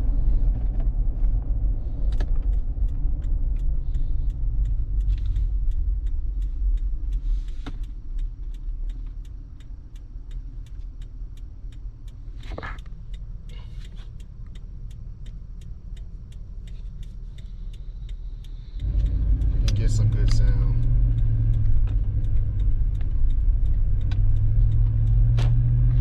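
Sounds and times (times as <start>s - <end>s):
car engine low rumble: 0.0s - 26.0s
light regular ticking: 0.2s - 26.0s.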